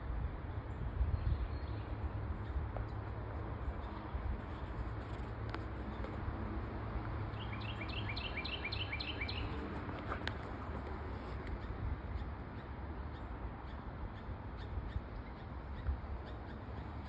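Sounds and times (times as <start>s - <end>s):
songbird singing: 7.2s - 17.0s.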